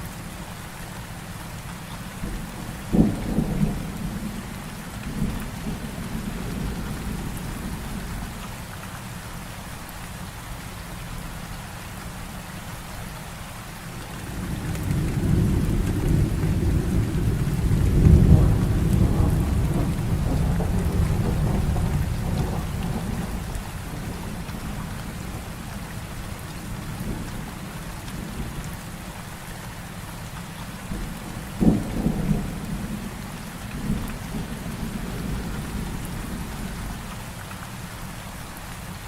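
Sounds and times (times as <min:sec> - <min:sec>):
heavy rain: 0:00.0 - 0:39.0
rolling rumble of thunder: 0:02.2 - 0:08.4, 0:14.0 - 0:29.4, 0:30.8 - 0:37.2.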